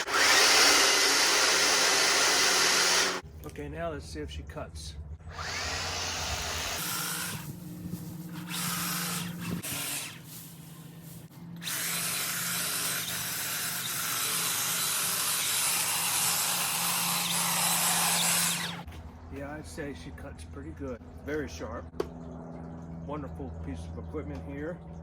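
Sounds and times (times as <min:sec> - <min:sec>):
hedge trimmer humming: 0:00.0 - 0:03.2, 0:05.2 - 0:18.9.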